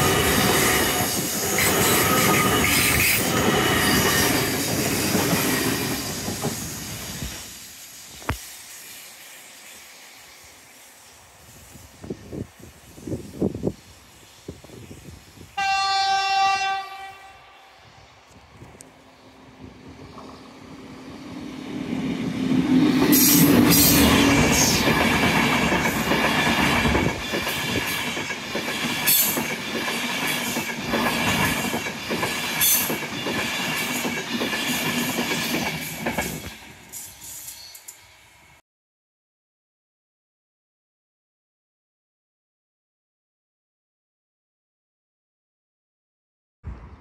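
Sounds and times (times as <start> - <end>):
train passing at speed: 0.0 - 38.6
train horn: 15.6 - 18.0
wheels clacking over rail joints: 22.9 - 36.8.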